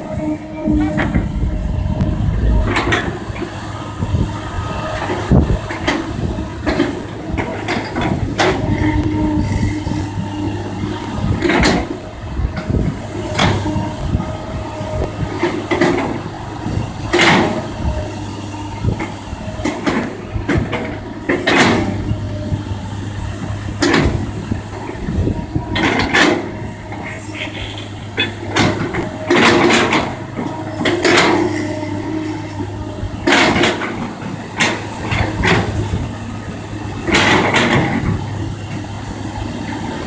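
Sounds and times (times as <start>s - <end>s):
excavator diesel engine running: 0.0s - 40.0s
metal clanking and scraping: 0.1s - 4.3s, 25.0s - 36.0s.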